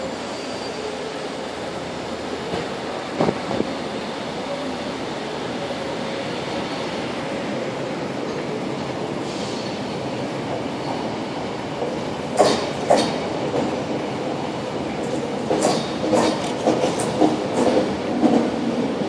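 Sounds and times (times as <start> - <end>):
train wheels rumbling on track: 0.0 - 19.0
wheels clacking over rail joints: 11.8 - 13.8, 15.0 - 18.8.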